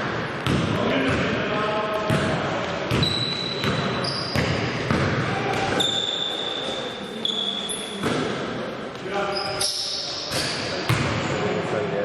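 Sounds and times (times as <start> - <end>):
basketball bouncing on court: 0.1 - 1.4, 2.0 - 6.1, 10.3 - 11.2
high-pitched shoe squeals: 3.0 - 4.5, 5.7 - 8.0, 9.2 - 10.7.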